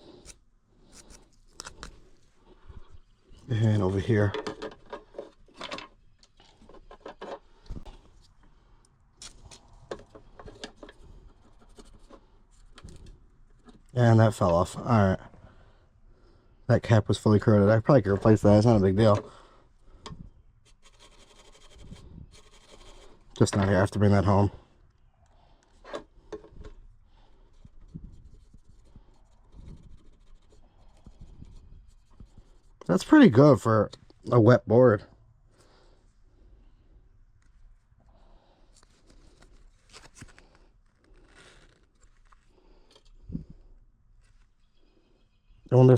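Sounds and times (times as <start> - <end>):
scratching on a circuit board: 20.6 - 23.2, 27.6 - 32.8
tool scraping circuit board: 20.6 - 23.2.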